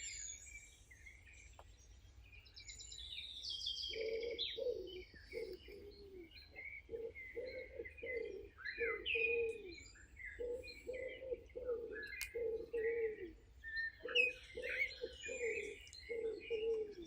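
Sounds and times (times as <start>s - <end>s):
songbirds chirping and trilling: 0.0s - 17.0s
bird hooting low notes: 3.7s - 17.0s.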